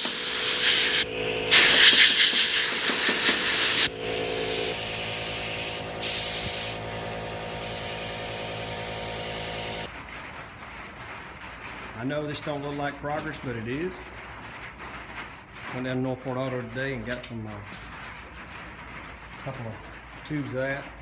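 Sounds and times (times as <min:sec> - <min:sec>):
compressed air hissing: 0:00.0 - 0:09.9
machine hum: 0:00.0 - 0:09.9.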